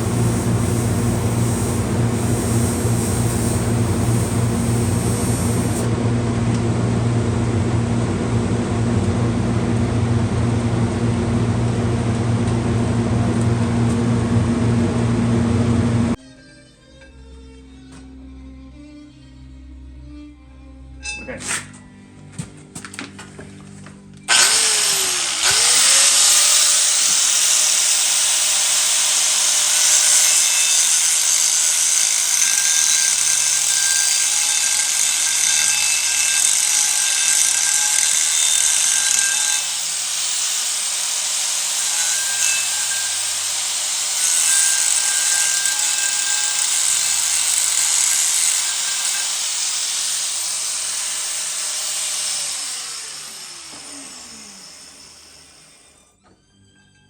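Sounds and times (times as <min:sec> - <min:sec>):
motor whine: 0:00.0 - 0:16.2, 0:24.3 - 0:49.9
power tool grinding metal: 0:00.0 - 0:16.2, 0:24.3 - 0:56.1.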